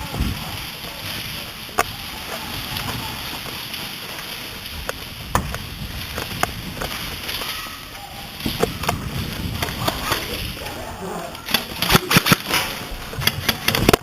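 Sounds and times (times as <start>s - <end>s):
wind noise on microphone: 0.0s - 14.0s
airsoft gun shots: 11.6s - 13.9s.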